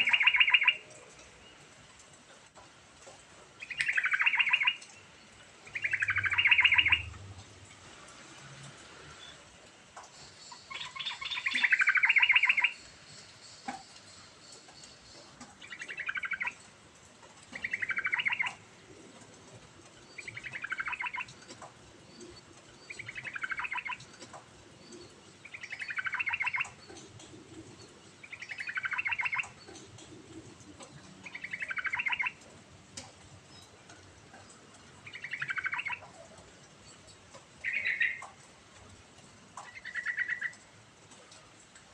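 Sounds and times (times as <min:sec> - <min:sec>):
bulbul singing: 0:00.0 - 0:00.8, 0:03.6 - 0:05.1, 0:05.7 - 0:07.1, 0:10.5 - 0:12.8, 0:13.5 - 0:16.6, 0:17.5 - 0:18.6, 0:20.1 - 0:21.4, 0:22.1 - 0:24.2, 0:24.8 - 0:27.2, 0:27.8 - 0:30.2, 0:30.8 - 0:32.4, 0:35.0 - 0:36.2, 0:36.9 - 0:38.2.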